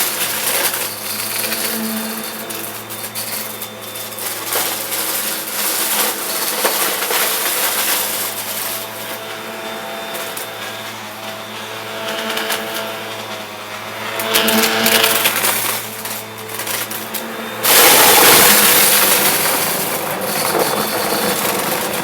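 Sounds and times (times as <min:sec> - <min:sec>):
confetti rattling up nozzle: 0:00.0 - 0:08.8, 0:17.6 - 0:22.0
vacuum cleaner motor hum: 0:00.0 - 0:22.0.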